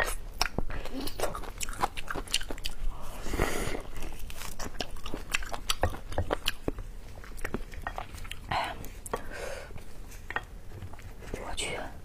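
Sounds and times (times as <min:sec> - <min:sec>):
chewing with sharp mouth clicks: 0:00.0 - 0:03.0, 0:03.8 - 0:09.2.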